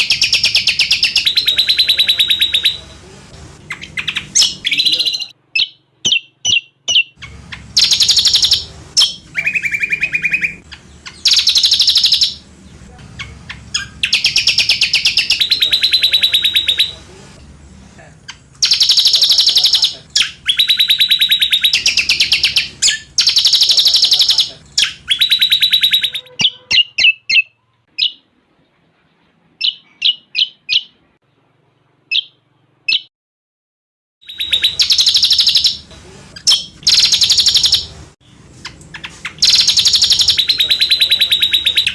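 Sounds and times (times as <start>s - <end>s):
bird trilling: 0.0s - 2.9s, 3.7s - 12.5s, 13.1s - 17.0s, 18.2s - 28.3s, 29.6s - 31.0s, 32.1s - 33.1s, 34.2s - 38.0s, 38.6s - 41.9s
bird chips: 3.7s - 17.0s, 34.2s - 41.9s.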